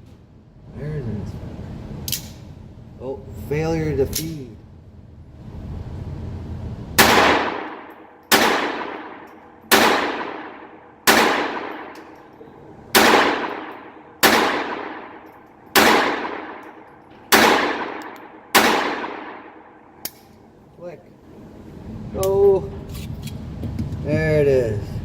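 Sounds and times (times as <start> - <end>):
pistol shots echoing: 7.0 - 12.3, 12.9 - 20.2.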